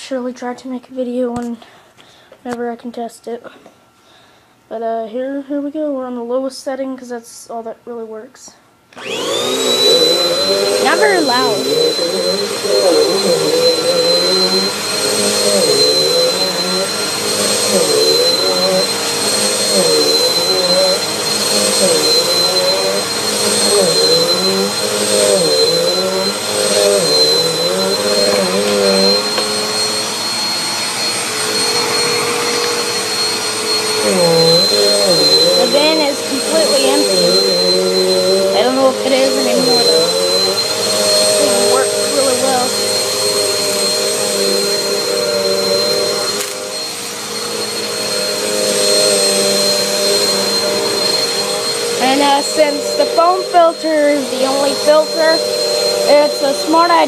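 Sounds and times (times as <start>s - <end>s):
vacuum cleaner whine: 8.9s - 57.0s
vacuum motor hum: 9.0s - 57.0s.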